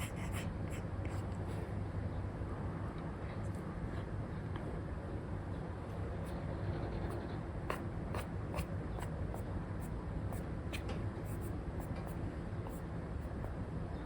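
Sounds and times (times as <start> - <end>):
stylus tapping and scratching on screen: 10.7 - 13.5.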